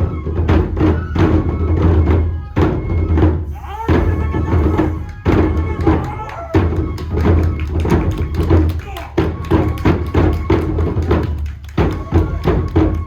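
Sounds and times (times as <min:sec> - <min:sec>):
loud drum beats: 0:00.0 - 0:13.0
clacking percussion strikes: 0:03.8 - 0:13.0.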